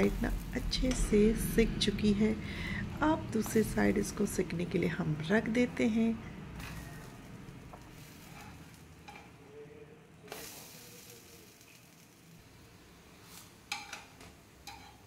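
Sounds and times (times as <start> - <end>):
patties sizzling faintly in oil: 6.5 - 9.6, 10.2 - 15.0
metal spatula scraping a pan: 6.6 - 9.4, 13.2 - 15.0.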